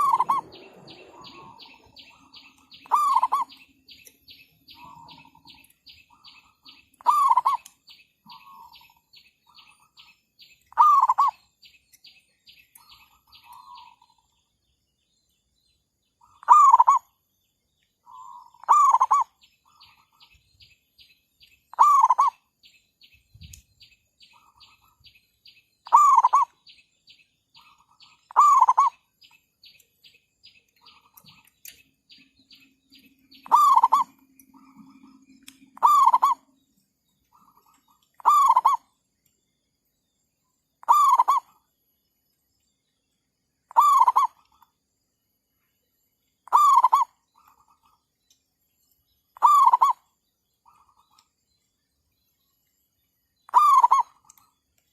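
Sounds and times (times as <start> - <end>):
dove cooing: 0.0 - 3.6, 7.0 - 7.6, 10.7 - 11.4, 16.4 - 17.0, 18.1 - 19.3, 21.7 - 22.4, 25.9 - 26.5, 33.4 - 34.2, 35.8 - 36.4, 38.2 - 38.8, 40.8 - 41.5, 43.7 - 44.4, 46.5 - 47.1, 49.4 - 50.0, 53.5 - 54.2.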